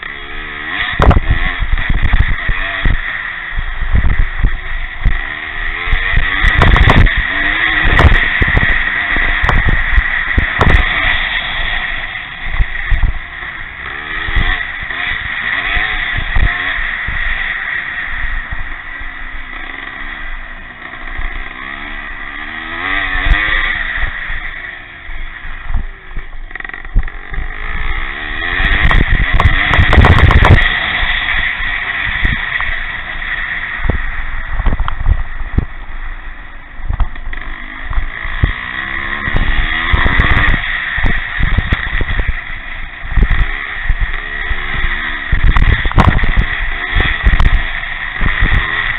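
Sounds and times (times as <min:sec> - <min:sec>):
motorcycle engines revving: 0:00.0 - 0:48.9.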